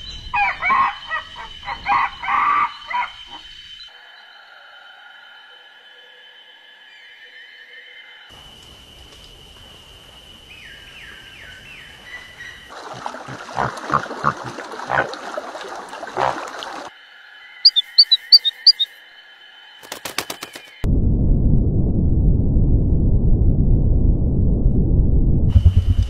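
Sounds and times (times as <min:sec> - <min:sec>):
harsh animal calls: 0:12.9 - 0:15.2, 0:16.0 - 0:16.9, 0:17.6 - 0:18.9
falling chirps: 0:17.6 - 0:19.0
high bird chirps: 0:17.6 - 0:19.0
fast clicks: 0:19.8 - 0:20.8.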